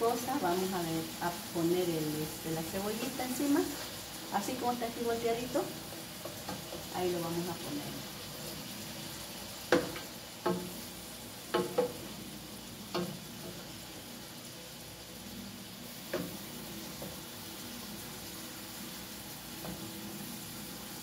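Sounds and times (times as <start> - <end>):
liver sizzling in oil: 0.0 - 21.0
metal spatula tapping pot: 9.7 - 10.8, 11.5 - 12.0.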